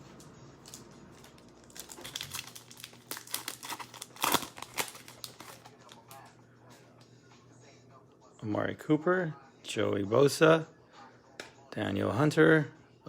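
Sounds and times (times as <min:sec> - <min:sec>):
card pack wrapper crinkling and tearing: 0:00.6 - 0:06.3.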